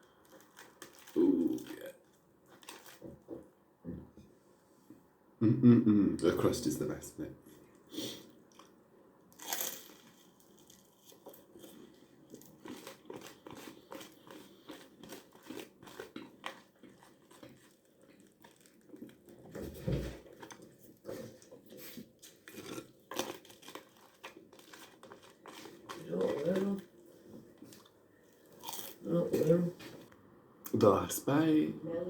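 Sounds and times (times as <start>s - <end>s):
chewing crunchy toast: 0.0s - 3.1s, 7.7s - 19.6s, 20.2s - 29.5s.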